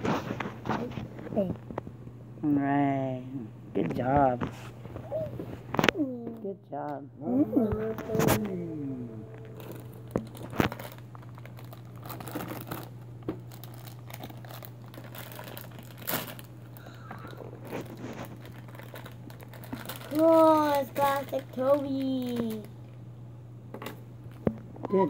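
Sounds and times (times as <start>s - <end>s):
plastic bag crinkling: 9.3s - 22.7s.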